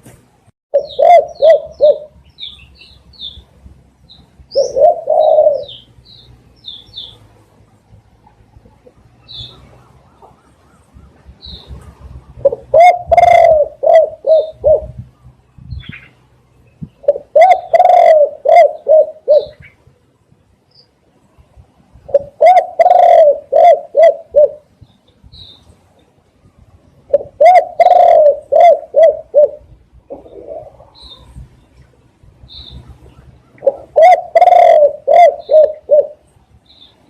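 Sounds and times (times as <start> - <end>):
dove cooing: 0.7 - 2.2, 4.5 - 5.9, 12.3 - 15.0, 17.0 - 19.8, 22.1 - 24.7, 27.1 - 31.3, 33.4 - 36.2
small birds chirping: 0.7 - 21.6, 24.6 - 28.2, 28.8 - 37.0.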